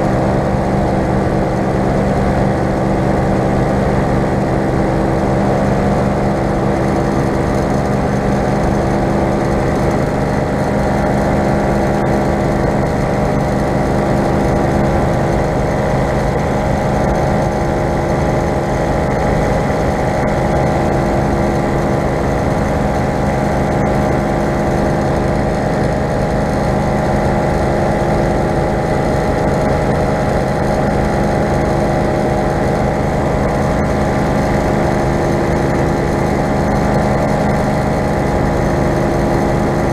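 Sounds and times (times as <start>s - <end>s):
paramotor engine and propeller: 0.0s - 39.9s.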